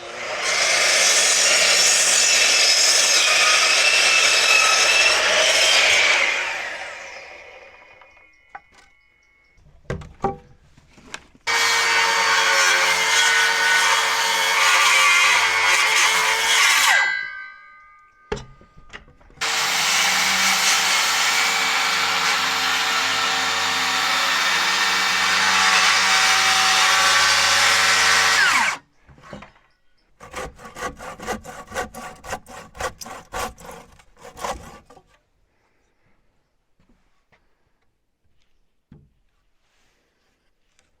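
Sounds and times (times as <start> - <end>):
electric saw cutting wood: 0.0 - 8.1, 11.5 - 17.0, 19.4 - 28.8.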